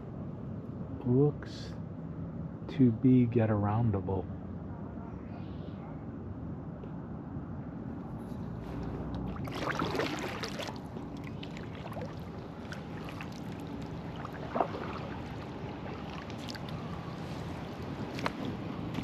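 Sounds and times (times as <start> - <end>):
low rumble: 1.6 - 19.0
paddle splashing water: 9.2 - 18.6.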